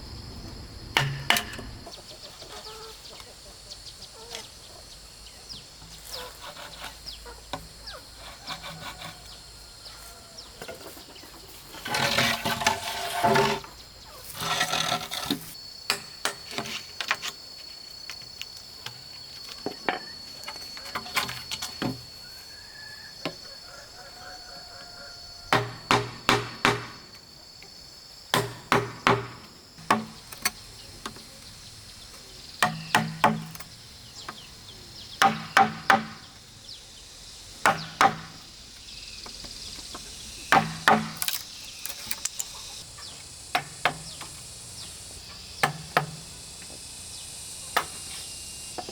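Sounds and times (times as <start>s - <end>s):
high insect drone: 0.0s - 48.9s
bamboo being chopped: 25.5s - 27.0s, 28.3s - 30.2s, 32.6s - 33.5s, 35.2s - 36.2s, 37.6s - 38.4s, 40.5s - 42.3s.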